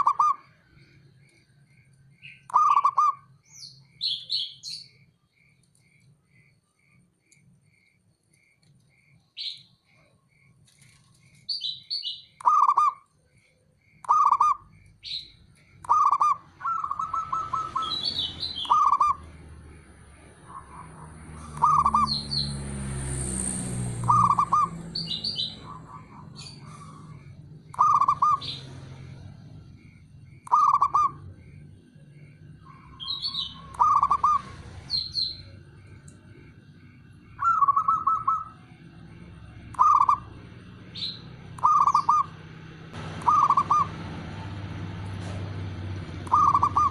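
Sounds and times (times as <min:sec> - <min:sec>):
doves cooing: 0:00.0 - 0:00.6, 0:02.5 - 0:03.3, 0:12.4 - 0:23.2, 0:24.0 - 0:32.0, 0:32.7 - 0:46.9
higher bird chirps: 0:00.0 - 0:44.9, 0:45.9 - 0:46.9.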